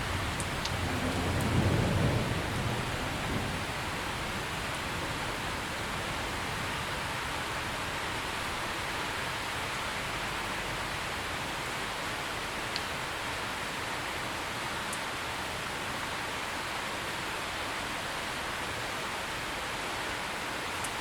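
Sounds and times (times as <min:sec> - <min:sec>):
low thunder rumble: 0:00.0 - 0:07.7
steady rain falling: 0:00.0 - 0:21.0.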